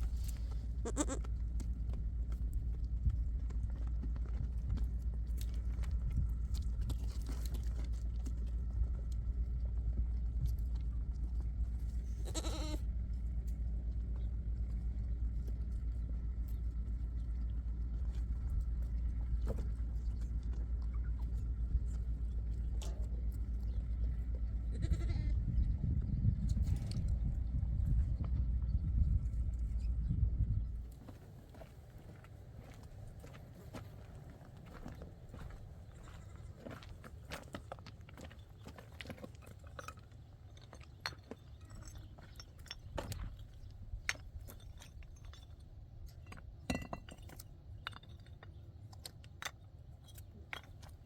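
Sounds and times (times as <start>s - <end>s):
low rumble: 0.0s - 37.4s
sheep and goats bleating: 0.7s - 1.3s, 12.1s - 12.9s, 24.6s - 25.4s.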